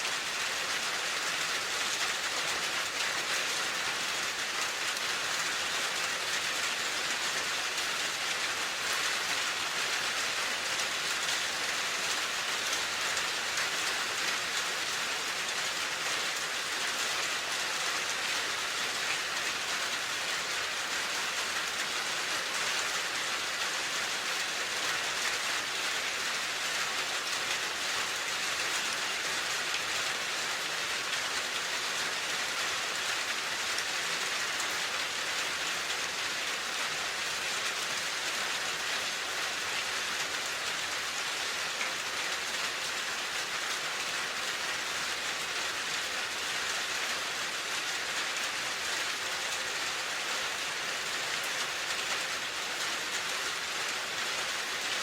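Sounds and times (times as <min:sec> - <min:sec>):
rain pattering on a surface: 0:00.0 - 0:55.0.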